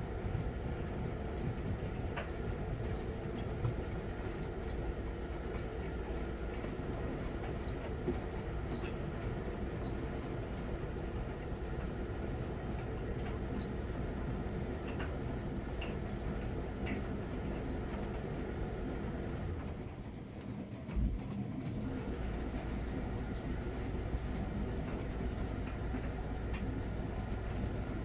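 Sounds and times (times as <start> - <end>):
washing machine drum rumbling: 20.9 - 28.0.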